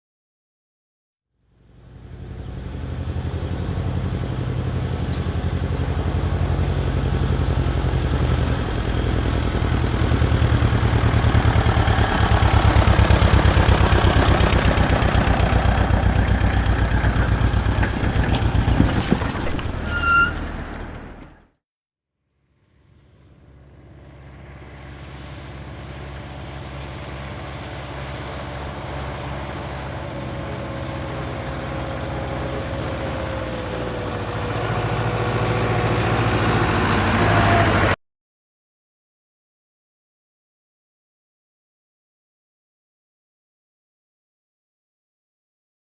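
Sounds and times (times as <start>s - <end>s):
truck diesel engine rumbling: 1.6s - 21.5s, 22.9s - 38.0s.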